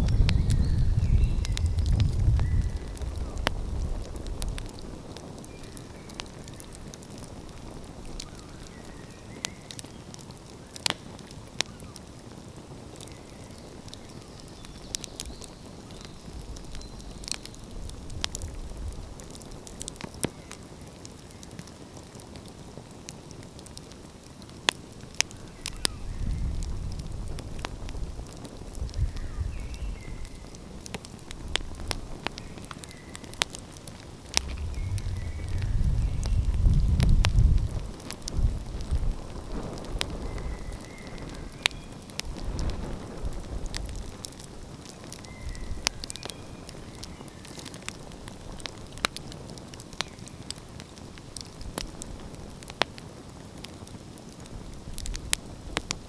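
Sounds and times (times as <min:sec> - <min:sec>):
wood fire crackling: 0:00.0 - 0:56.0
low rumble: 0:34.3 - 0:38.6.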